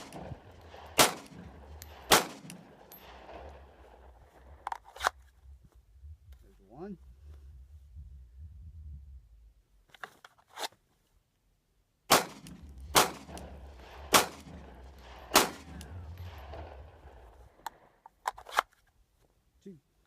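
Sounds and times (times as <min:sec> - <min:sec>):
pistol shots with echo: 0:00.0 - 0:03.9, 0:12.1 - 0:17.2.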